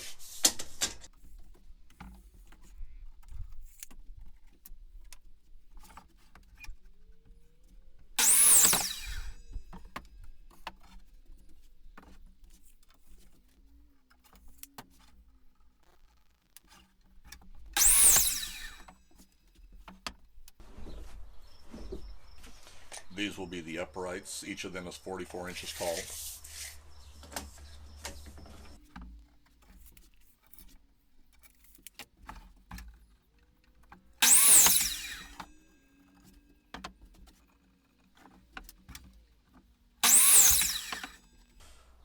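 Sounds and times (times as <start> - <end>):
power saw cutting wood: 8.0 - 11.0, 17.6 - 19.3, 20.6 - 29.2, 34.2 - 36.7, 40.0 - 42.0.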